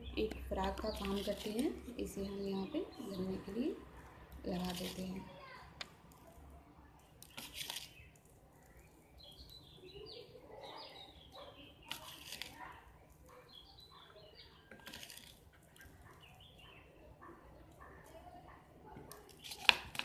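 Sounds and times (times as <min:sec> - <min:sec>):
faint birds chirping: 0:00.0 - 0:20.0
hands rustling leaves: 0:04.5 - 0:06.4, 0:07.1 - 0:10.0, 0:11.8 - 0:13.3.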